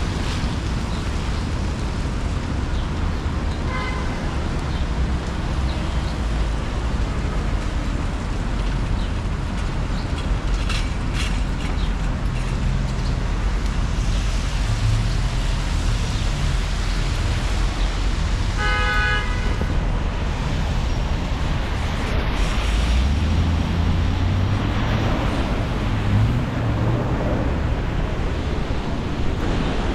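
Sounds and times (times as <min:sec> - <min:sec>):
traffic on wet road: 0:00.0 - 0:29.9
car horn: 0:03.7 - 0:04.3, 0:18.6 - 0:19.7.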